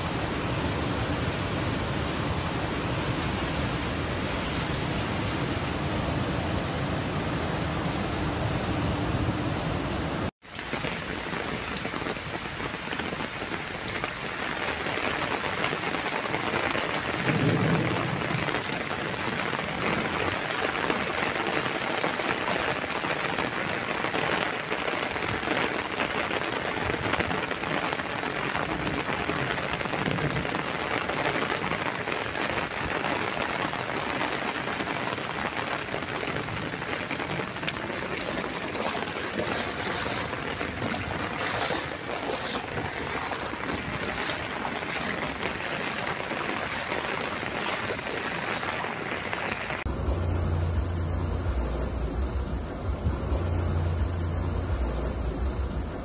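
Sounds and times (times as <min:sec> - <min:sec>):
heavy rain hissing: 0:09.6 - 0:49.9
low rumble: 0:49.9 - 0:56.0.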